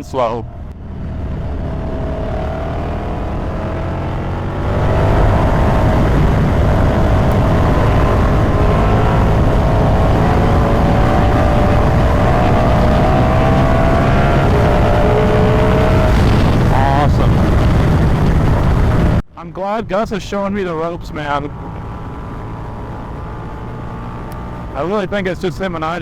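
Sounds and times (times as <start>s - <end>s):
wind rush: 0.0s - 19.2s
motorcycle engine running: 0.5s - 19.2s.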